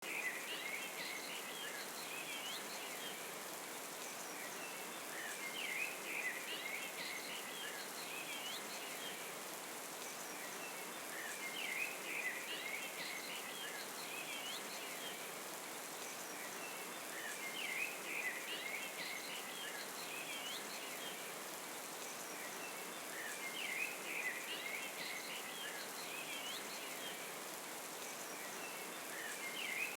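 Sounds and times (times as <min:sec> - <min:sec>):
waterfall hissing: 0:00.1 - 0:30.0.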